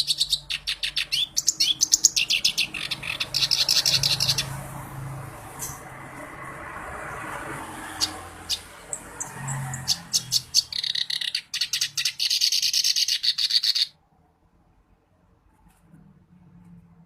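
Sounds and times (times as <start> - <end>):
reed warbler singing: 0.0 - 4.7, 7.8 - 13.9.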